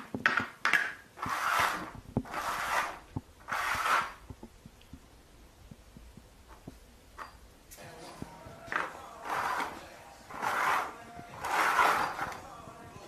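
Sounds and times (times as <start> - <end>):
rubbing scraping swishes: 1.2 - 4.2, 9.2 - 12.4.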